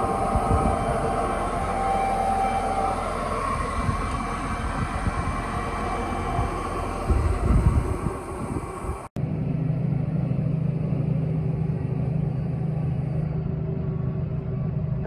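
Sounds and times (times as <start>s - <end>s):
tractor engine droning: 0.0s - 9.1s.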